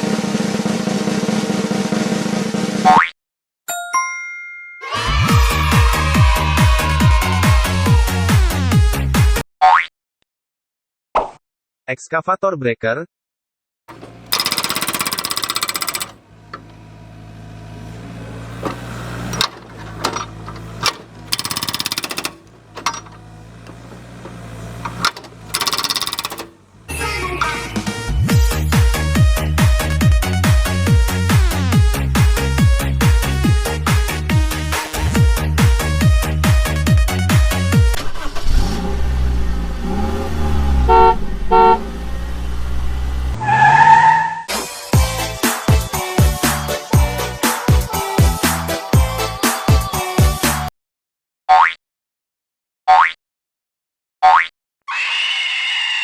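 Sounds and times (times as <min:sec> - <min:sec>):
car horn honks: 0:13.9 - 0:28.0, 0:40.8 - 0:41.9
hydraulic breaker hammering: 0:13.9 - 0:29.6
steady engine hum: 0:13.9 - 0:37.8.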